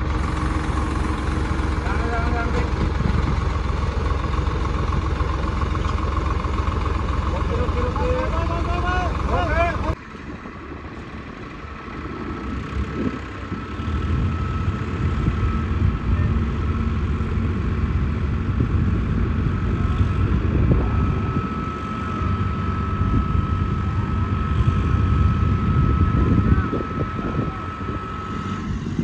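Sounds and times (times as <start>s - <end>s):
tractor engine running: 0.0s - 29.0s
high whine: 7.5s - 29.0s.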